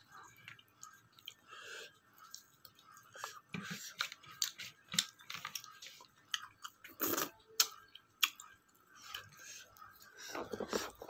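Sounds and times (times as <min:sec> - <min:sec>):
chewing with mouth clicks: 0:00.2 - 0:11.0.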